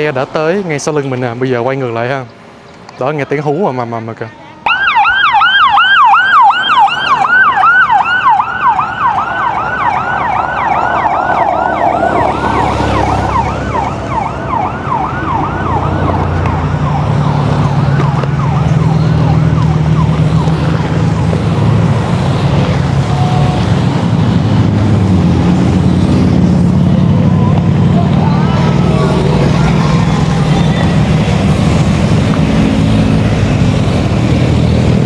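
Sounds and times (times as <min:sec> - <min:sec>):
yelping siren: 0:04.7 - 0:24.3, 0:27.0 - 0:34.6
motorcycle engines droning: 0:04.7 - 0:35.0.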